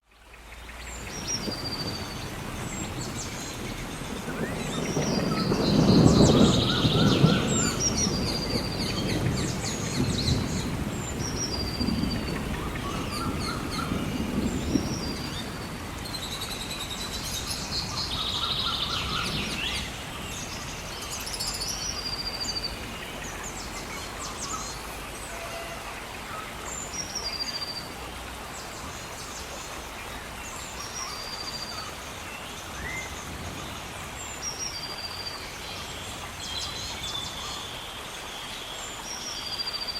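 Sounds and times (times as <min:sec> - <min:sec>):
gentle rain: 0:00.0 - 0:39.9
birds singing: 0:00.1 - 0:28.0.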